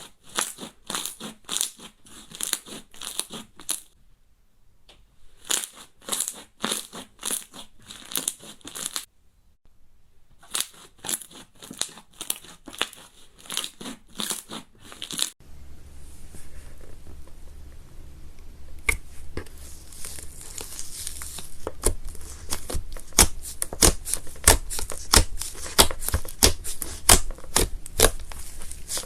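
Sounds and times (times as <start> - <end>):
low hum: 15.4 - 23.0.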